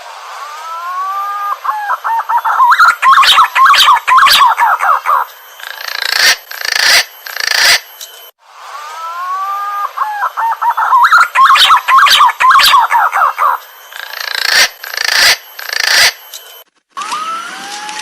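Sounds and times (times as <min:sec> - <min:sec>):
pigeon whistled call: 0:00.7 - 0:05.3, 0:09.0 - 0:13.6.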